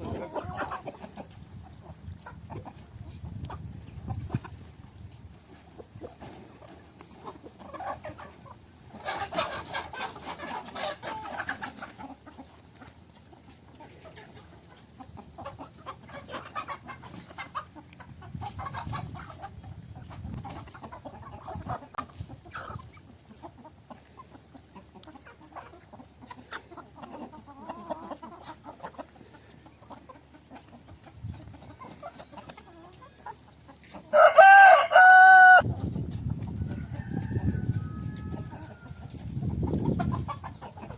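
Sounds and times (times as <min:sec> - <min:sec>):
chickens clucking: 0:00.0 - 0:40.9
rooster crowing: 0:34.1 - 0:35.6, 0:36.7 - 0:39.0.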